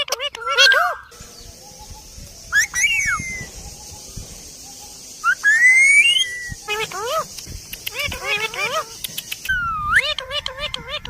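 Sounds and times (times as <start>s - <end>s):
parrot whistling: 2.5s - 3.5s, 5.2s - 7.2s.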